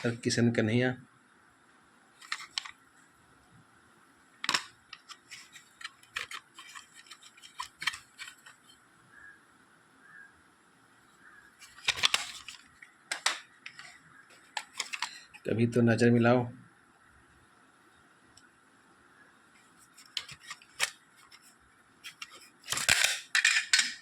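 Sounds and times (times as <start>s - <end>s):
plastic cassette cases clicking: 2.2s - 2.8s, 4.4s - 8.6s, 11.6s - 15.4s, 20.0s - 21.5s, 22.1s - 24.0s.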